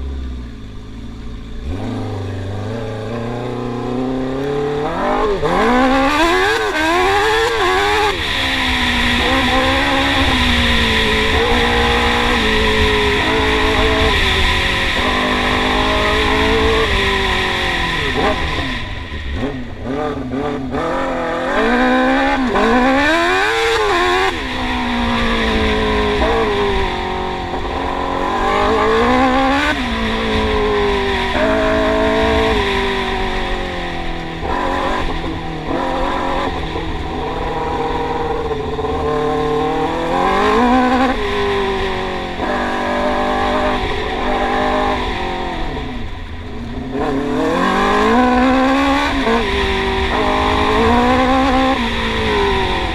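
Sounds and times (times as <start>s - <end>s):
engine revving hard: 46.9s - 52.9s.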